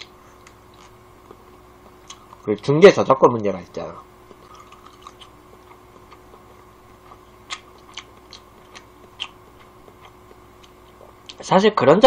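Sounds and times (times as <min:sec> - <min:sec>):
person chewing food: 0:00.0 - 0:02.4, 0:04.2 - 0:11.4
faint steady hum: 0:00.0 - 0:12.0
soft mouth clicks: 0:07.4 - 0:11.4.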